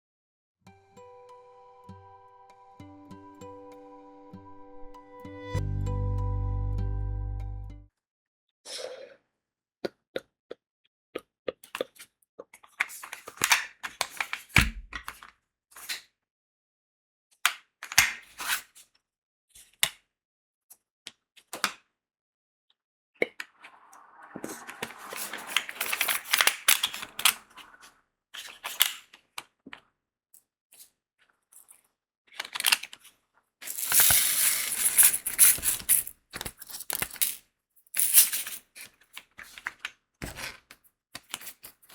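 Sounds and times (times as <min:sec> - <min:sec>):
loose beads rattling: 0:33.6 - 0:38.6.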